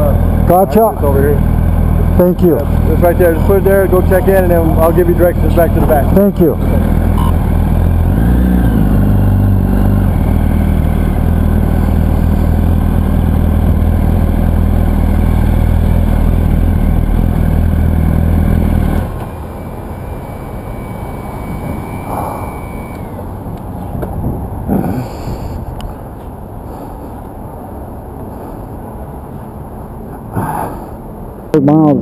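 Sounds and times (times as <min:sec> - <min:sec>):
motorcycle engine running: 0:00.0 - 0:26.4.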